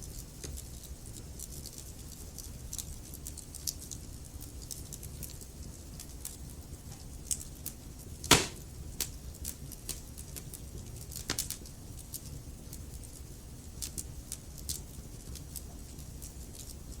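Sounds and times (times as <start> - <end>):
logs crackling in fireplace: 4.5 - 17.0
loud fire pop: 8.3 - 8.7.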